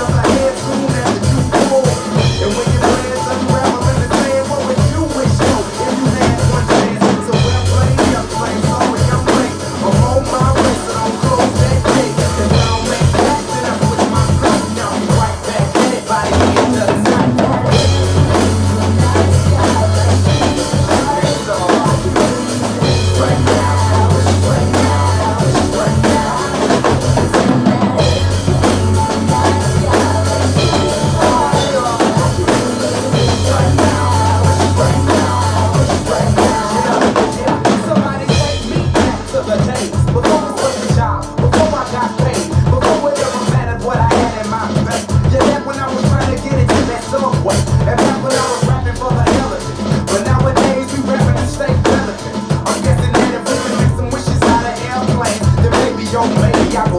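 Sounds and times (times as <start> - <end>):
drum kit playing: 0.0 - 56.9
recorded rock song: 0.0 - 56.9.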